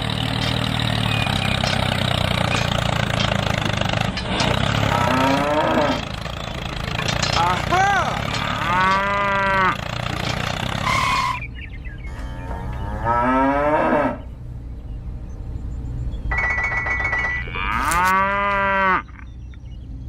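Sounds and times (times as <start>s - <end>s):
cattle mooing: 4.5s - 6.4s, 7.2s - 10.2s, 12.2s - 14.3s, 17.4s - 19.3s.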